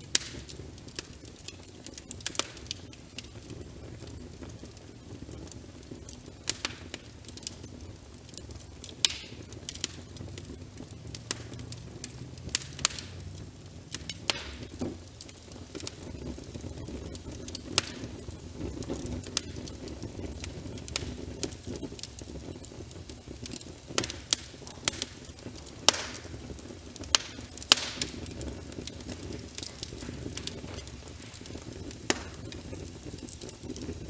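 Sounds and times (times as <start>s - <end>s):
fire hissing: 0.0s - 34.0s
rain pattering: 0.0s - 34.0s
wood fire crackling: 0.0s - 34.0s.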